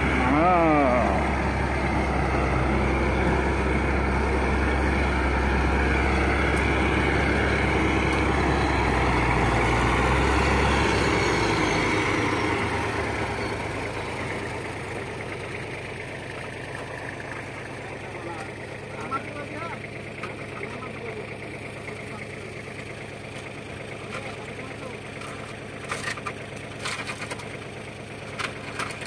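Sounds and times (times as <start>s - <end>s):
diesel engine low rumble: 0.0s - 29.0s.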